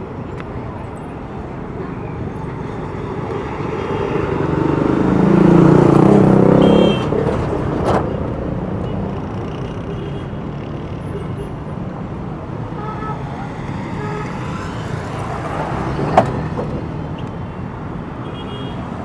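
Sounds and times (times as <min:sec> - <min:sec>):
traffic hum: 0:00.0 - 0:19.0
vehicle engine passing close: 0:01.9 - 0:09.8, 0:11.7 - 0:17.4.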